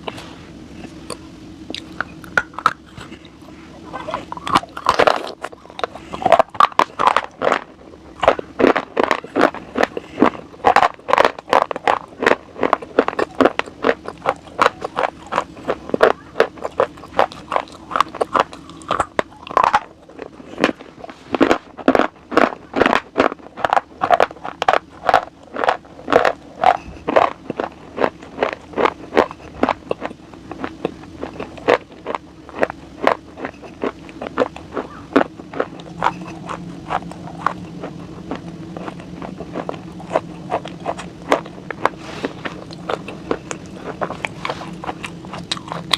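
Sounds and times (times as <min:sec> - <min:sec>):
crunchy chewing: 0:00.0 - 0:45.9
faint steady hum: 0:00.0 - 0:45.9.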